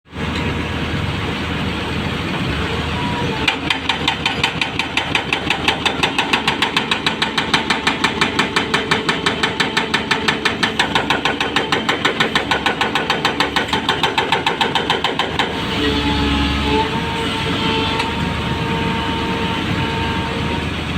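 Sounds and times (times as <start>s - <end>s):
backhoe diesel engine running: 0.1s - 20.9s
rapid metallic knocking: 3.5s - 15.6s.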